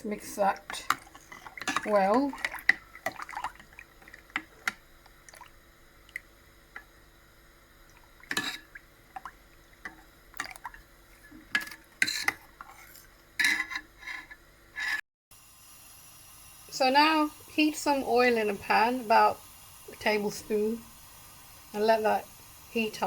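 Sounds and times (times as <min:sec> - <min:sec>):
liquid sloshing: 0:00.1 - 0:06.9, 0:07.8 - 0:13.3.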